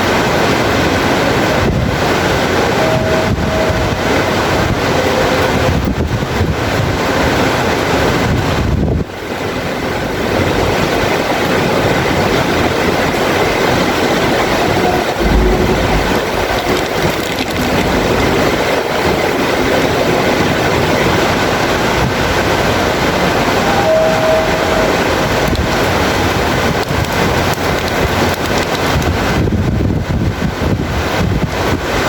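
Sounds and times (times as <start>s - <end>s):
heavy rain: 0.0s - 32.0s.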